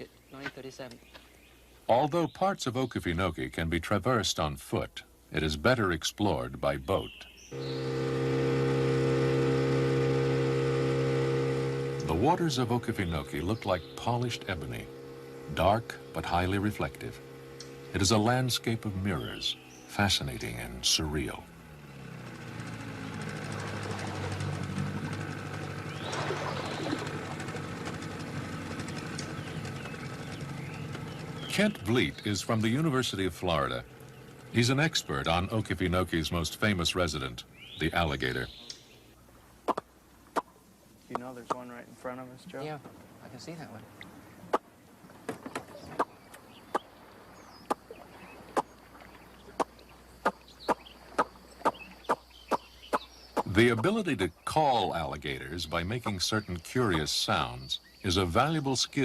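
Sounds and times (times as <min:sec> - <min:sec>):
outboard motor running: 0:06.4 - 0:59.0
person making sharp pops: 0:39.6 - 0:40.5.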